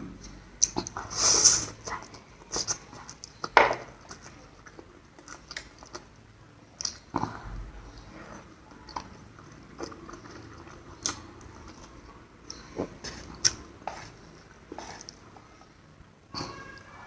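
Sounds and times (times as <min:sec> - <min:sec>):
person chewing noodles: 0:00.2 - 0:16.9
wet mouth smacks and clicks: 0:11.0 - 0:11.8.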